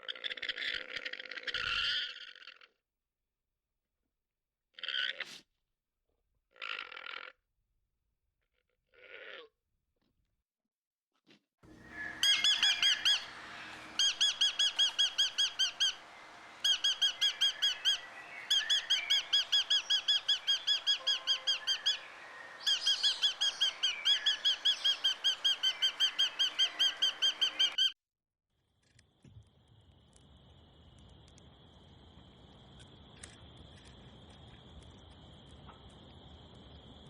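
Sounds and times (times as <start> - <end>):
bird chirping rapidly: 11.7 - 27.9.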